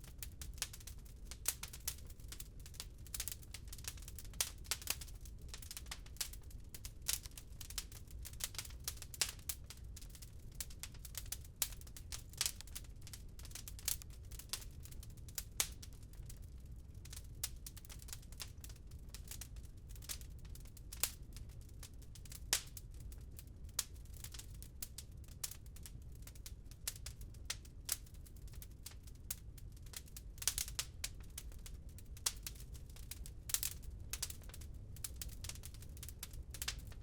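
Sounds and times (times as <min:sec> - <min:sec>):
wood fire crackling: 0:00.0 - 0:37.0.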